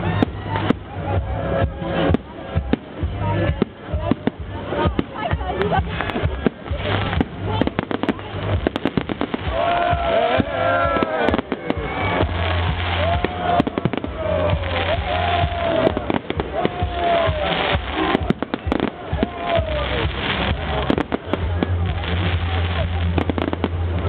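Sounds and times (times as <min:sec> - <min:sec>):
firework bangs and crackles: 0:00.0 - 0:24.0
music with heavy bass: 0:00.0 - 0:24.0
firework whistling: 0:06.0 - 0:23.8.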